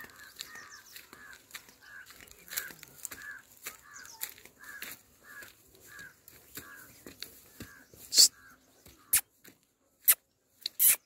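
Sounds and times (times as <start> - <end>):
footsteps on dry grassy path: 0.0 - 10.7
bird calling in short notes: 7.6 - 9.4.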